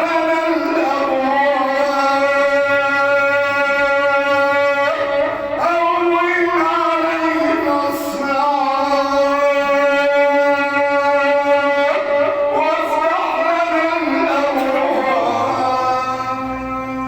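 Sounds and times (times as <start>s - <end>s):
man chanting melodically: 0.0s - 17.0s.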